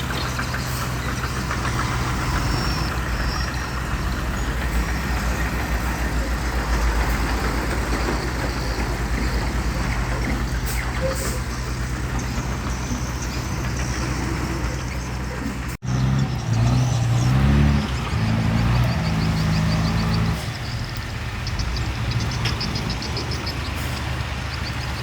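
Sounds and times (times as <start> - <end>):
heavy diesel engine throbbing: 0.0 - 25.0.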